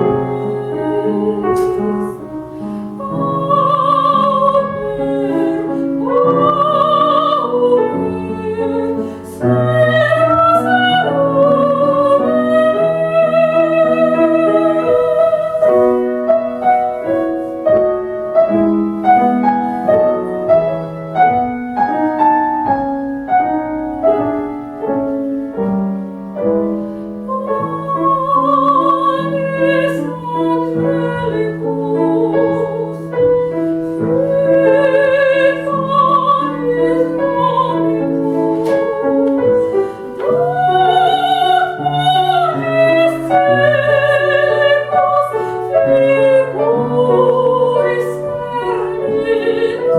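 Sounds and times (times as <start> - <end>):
woman singing operatically: 0.0 - 2.2, 3.0 - 15.9, 27.3 - 33.0, 34.1 - 39.3, 40.2 - 49.9
grand piano playing: 0.0 - 49.9.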